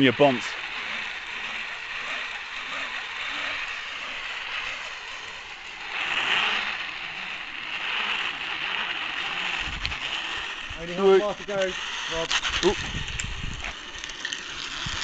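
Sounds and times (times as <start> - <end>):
zipline pulleys whirring on cable: 0.0 - 15.0.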